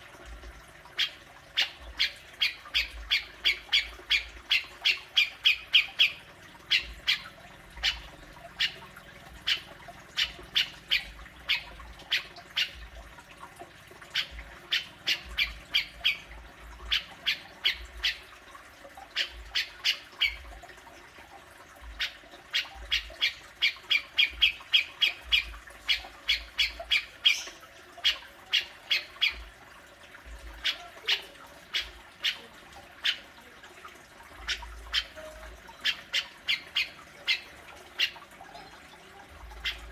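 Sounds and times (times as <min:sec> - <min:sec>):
bird harsh scolding calls: 0:01.0 - 0:13.0, 0:14.1 - 0:18.3, 0:21.8 - 0:29.5.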